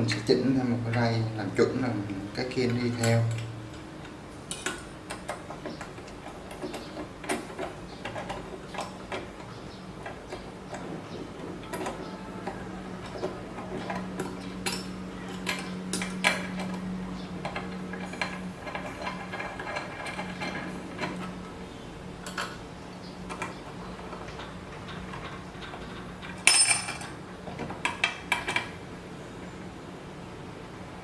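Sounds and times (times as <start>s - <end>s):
steady low hum: 0.0s - 31.0s
metal parts clinking: 11.6s - 21.4s, 23.3s - 27.2s.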